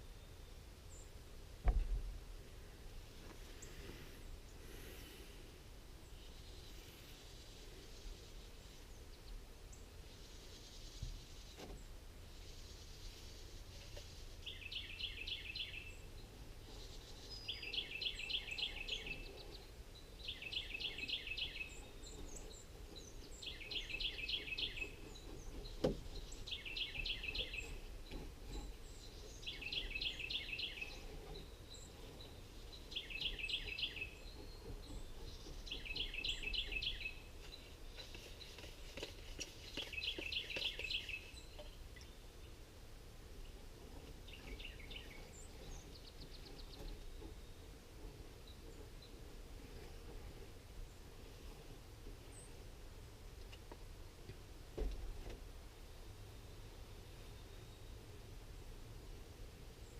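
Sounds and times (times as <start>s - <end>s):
songbird trilling: 17.1s - 19.6s, 20.2s - 27.9s, 29.0s - 31.8s, 32.6s - 37.3s.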